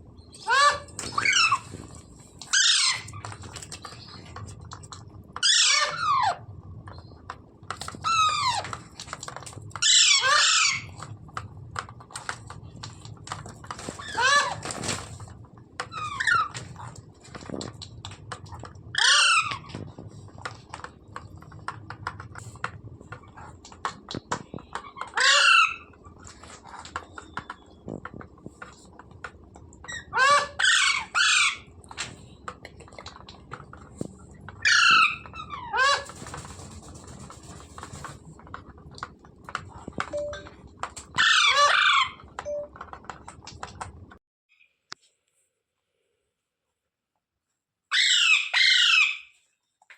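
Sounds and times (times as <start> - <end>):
parakeet squawking: 0.3 - 1.6, 2.5 - 3.2, 9.8 - 10.9, 25.1 - 25.9, 29.9 - 31.7.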